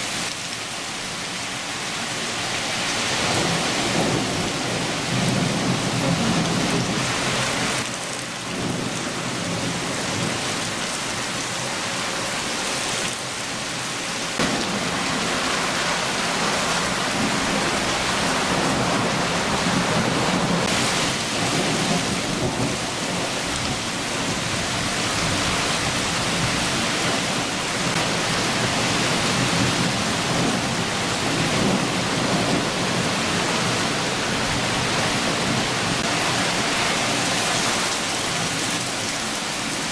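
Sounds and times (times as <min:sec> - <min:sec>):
steady rain downpour: 0:00.0 - 0:39.9
low thunder rumbling: 0:03.2 - 0:07.8, 0:14.4 - 0:36.8.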